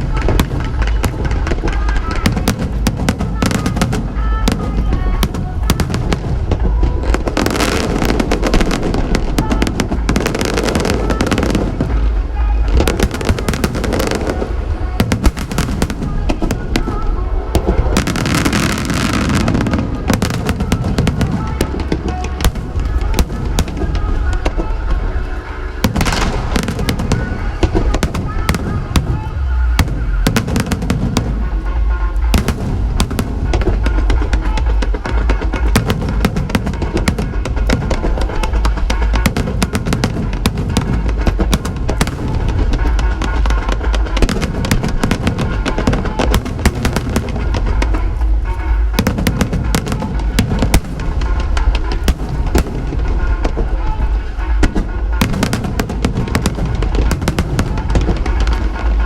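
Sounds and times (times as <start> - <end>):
fireworks cracking and popping: 0.0 - 59.0
deep booming rumble: 25.8 - 59.0.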